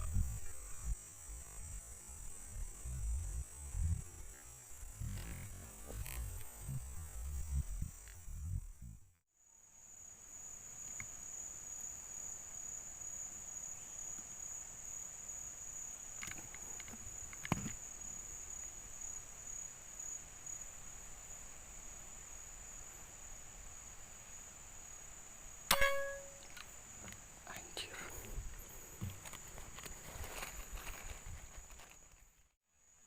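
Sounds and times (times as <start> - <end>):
high-pitched insect drone: 0.0 - 9.0, 25.7 - 26.6
sharp click: 25.7 - 26.7.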